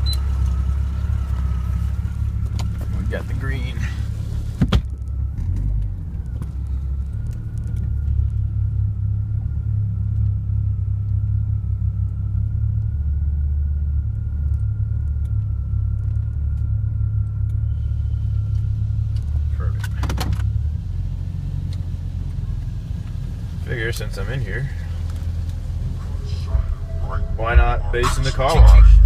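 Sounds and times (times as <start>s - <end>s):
low rumble inside car: 0.0s - 29.0s
car wash machinery whine: 11.2s - 29.0s.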